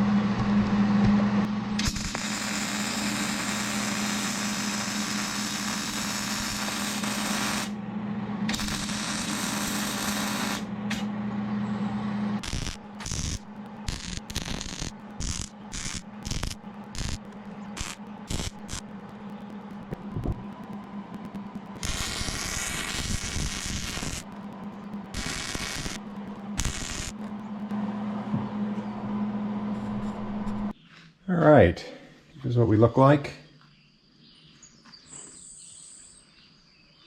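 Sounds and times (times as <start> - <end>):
welder hum: 0.0 - 30.8
welder arc crackling and hissing: 1.4 - 7.8, 8.4 - 11.1, 12.4 - 28.0.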